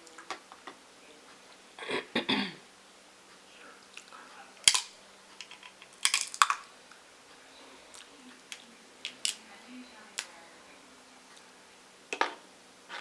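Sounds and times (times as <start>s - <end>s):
crab shells cracking: 4.0s - 6.7s.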